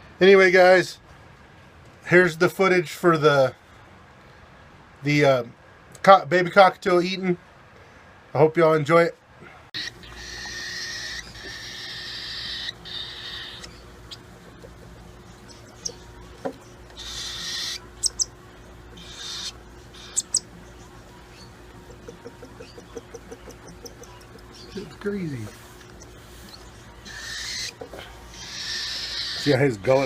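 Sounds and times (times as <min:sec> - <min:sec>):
baby bird raspy begging calls: 0:09.8 - 0:16.2, 0:17.0 - 0:29.6.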